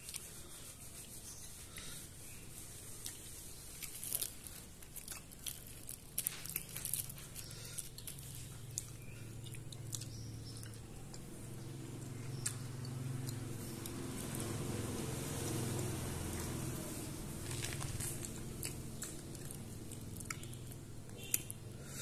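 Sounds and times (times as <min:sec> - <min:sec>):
chewing and crunching food: 0:02.6 - 0:22.0.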